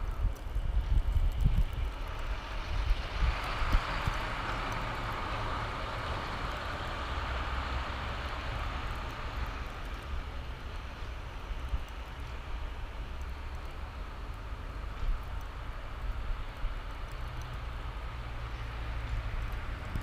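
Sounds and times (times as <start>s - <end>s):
wind buffeting microphone: 0.0s - 4.9s.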